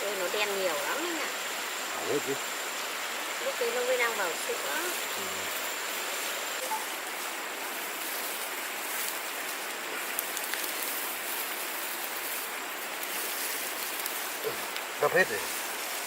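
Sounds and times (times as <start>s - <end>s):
water hissing: 0.0s - 16.0s
faint ticks: 10.1s - 11.0s.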